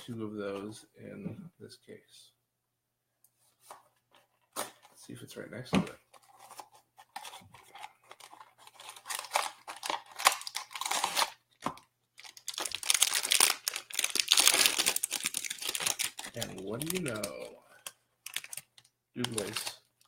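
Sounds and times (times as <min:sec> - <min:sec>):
plastic bag crinkling and tearing: 0:08.1 - 0:19.9.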